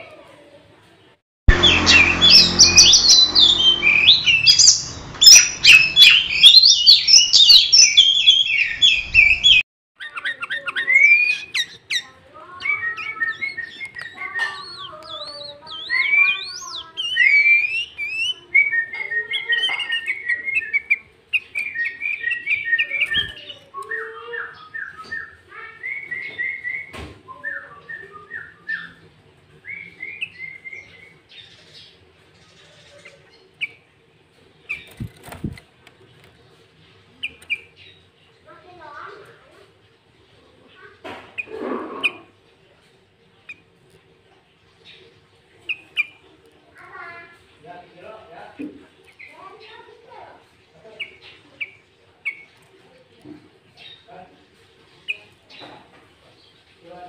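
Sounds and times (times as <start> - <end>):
bird singing rapid chirping: 1.5 - 29.0, 34.6 - 36.3
bird whistles and warbles: 1.6 - 29.0, 29.6 - 31.8, 41.3 - 42.3.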